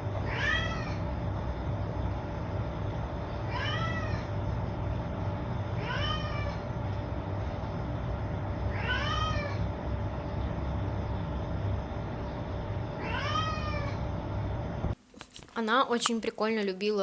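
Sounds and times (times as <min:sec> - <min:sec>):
cat meowing loudly: 0:00.2 - 0:01.0, 0:03.5 - 0:04.3, 0:05.8 - 0:06.6, 0:08.7 - 0:09.7, 0:13.0 - 0:14.1.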